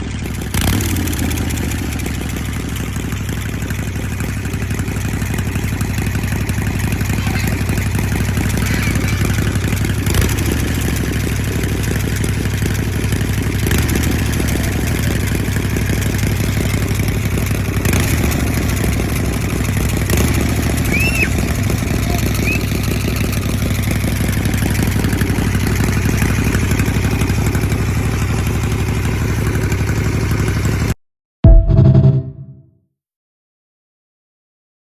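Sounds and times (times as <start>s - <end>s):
motorcycle engine running: 0.0s - 32.4s.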